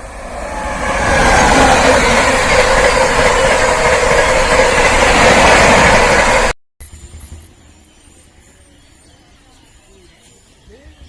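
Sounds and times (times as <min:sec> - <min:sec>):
train passing at high speed: 0:00.0 - 0:06.6.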